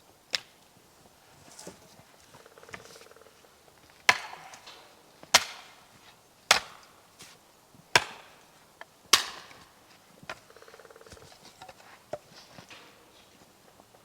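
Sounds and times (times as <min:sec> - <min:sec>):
wood being chopped: 0:04.0 - 0:05.9, 0:06.5 - 0:07.0, 0:07.9 - 0:08.5, 0:09.1 - 0:10.5.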